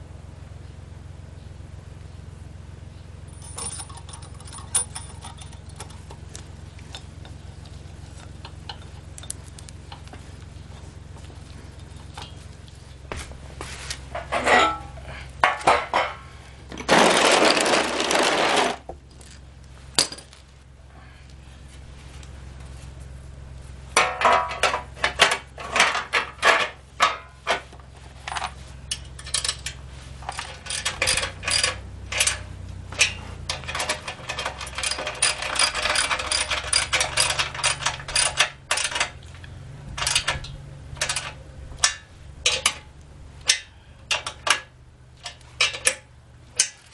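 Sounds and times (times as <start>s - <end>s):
metal tools clinking: 3.3s - 10.8s, 11.5s - 13.0s, 14.1s - 19.4s, 24.0s - 46.9s.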